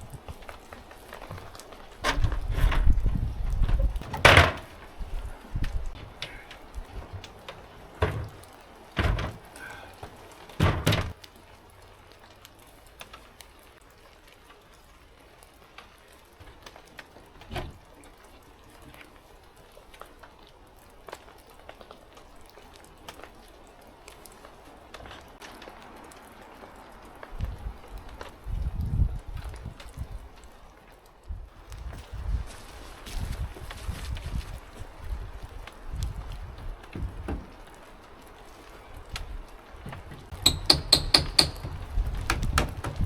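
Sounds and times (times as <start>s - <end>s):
hard wooden knocks and thuds: 1.2s - 11.2s, 36.8s - 37.7s, 39.8s - 43.0s.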